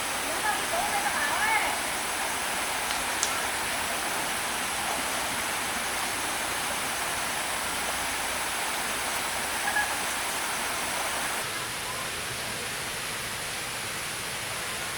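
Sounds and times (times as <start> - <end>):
stream water flowing: 0.0 - 14.9.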